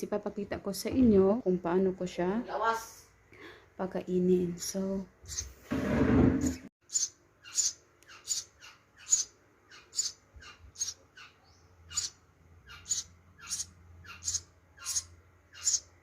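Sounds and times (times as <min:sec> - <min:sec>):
young sparrow chirping: 0:04.6 - 0:05.6, 0:06.8 - 0:16.0.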